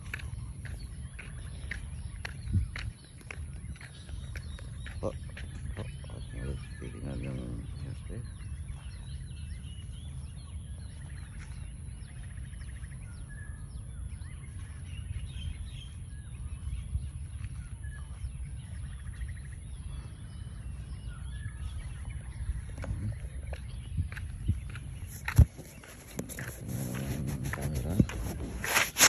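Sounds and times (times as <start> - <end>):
birds chirping and whistling: 0.0 - 29.0
steady low rumble: 13.7 - 28.8.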